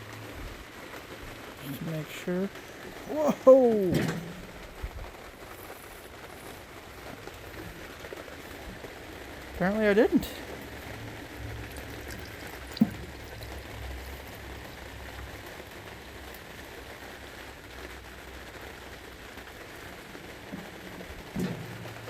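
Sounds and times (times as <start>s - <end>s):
oil trickling into a can: 0.9s - 22.0s.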